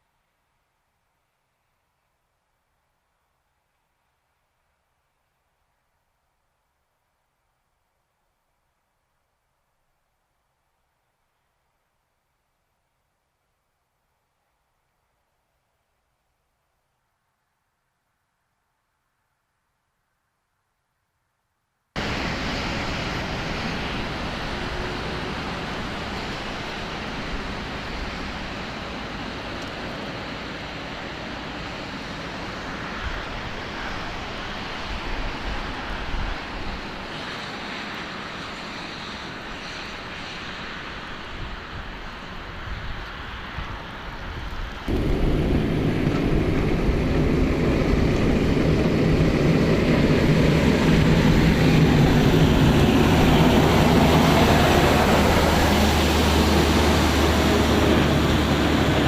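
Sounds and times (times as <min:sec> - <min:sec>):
snowplow engine humming: 0:22.0 - 0:36.1, 0:44.8 - 0:59.0.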